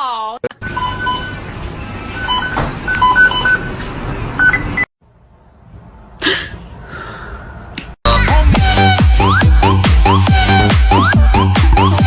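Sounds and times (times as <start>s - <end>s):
electronic dance music: 8.1s - 12.0s.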